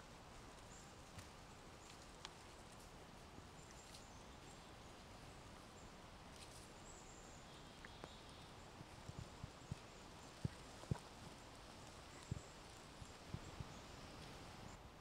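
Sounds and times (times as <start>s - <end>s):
faint outdoor background hiss: 0.0s - 15.0s
soft ticks: 7.8s - 14.4s.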